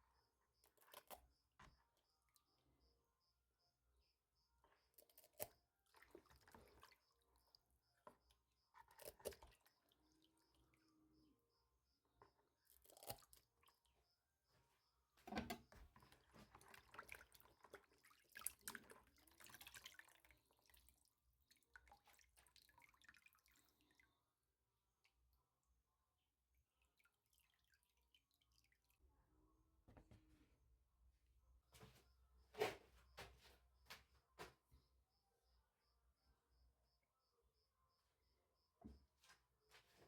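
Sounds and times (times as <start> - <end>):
small water splashes: 5.3 - 8.1, 15.9 - 24.0, 26.8 - 29.0
water dripping: 16.0 - 24.2, 26.7 - 29.0.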